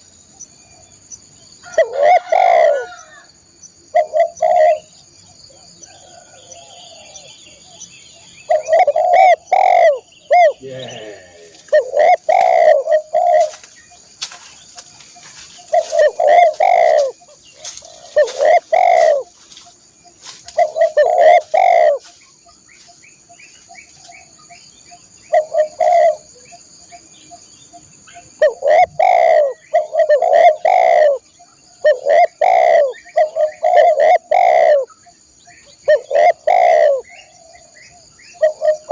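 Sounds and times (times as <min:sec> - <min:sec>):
dove cooing: 0:01.7 - 0:03.0, 0:03.9 - 0:04.9, 0:05.5 - 0:07.6, 0:08.4 - 0:13.7, 0:15.6 - 0:19.4, 0:20.5 - 0:22.1, 0:25.3 - 0:26.4, 0:28.4 - 0:35.0, 0:35.8 - 0:37.6, 0:38.4 - 0:38.9.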